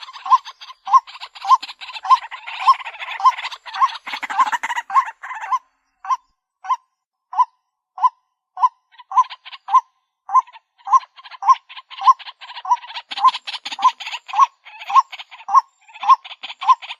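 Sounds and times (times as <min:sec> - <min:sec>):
harsh bird chatter: 0:00.0 - 0:06.2, 0:08.9 - 0:16.9.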